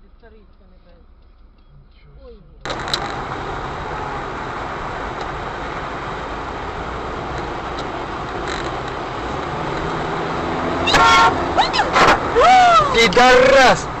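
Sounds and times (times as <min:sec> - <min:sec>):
faint ticks: 0:00.0 - 0:02.0
car engine and road noise: 0:00.0 - 0:14.0.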